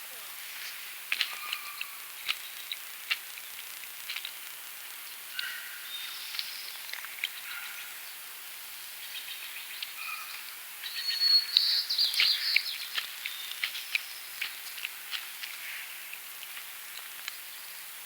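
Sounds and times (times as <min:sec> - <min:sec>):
songbirds chirping and singing: 0:09.0 - 0:14.2.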